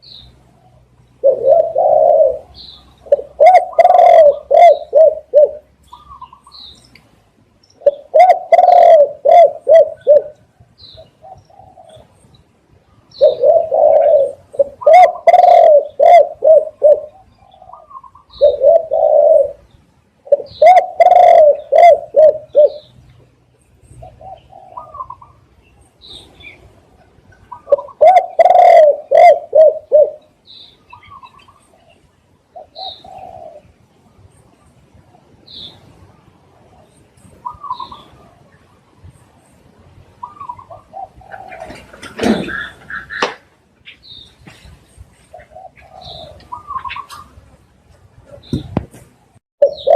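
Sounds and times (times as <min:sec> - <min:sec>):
small birds chirping: 0:00.0 - 0:49.9
dove cooing: 0:00.5 - 0:06.5, 0:07.8 - 0:12.2, 0:13.1 - 0:23.0, 0:24.0 - 0:25.5, 0:27.0 - 0:33.8, 0:36.6 - 0:38.5, 0:40.2 - 0:43.4, 0:45.3 - 0:47.4, 0:49.6 - 0:49.9.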